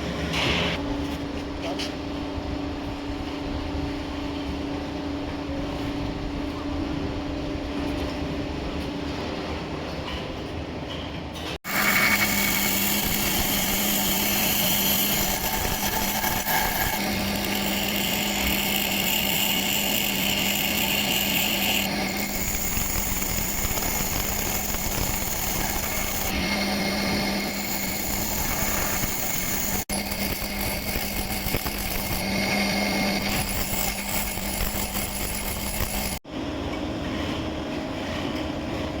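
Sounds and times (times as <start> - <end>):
grinding wheel hissing on metal: 11.6 - 36.2
motor hum: 11.6 - 36.2.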